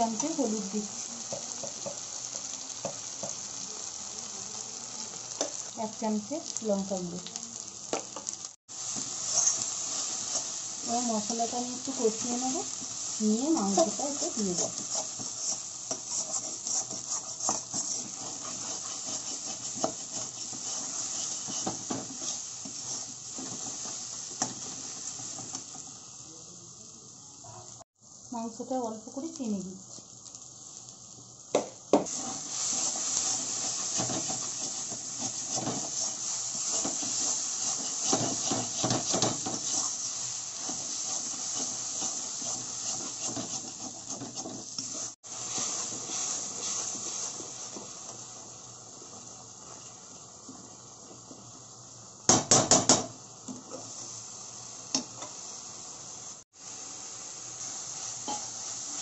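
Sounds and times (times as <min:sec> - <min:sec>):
food sizzling in oil: 0:00.0 - 0:59.0
spatula scraping a pan: 0:08.9 - 0:25.8, 0:32.1 - 0:48.1, 0:57.6 - 0:59.0.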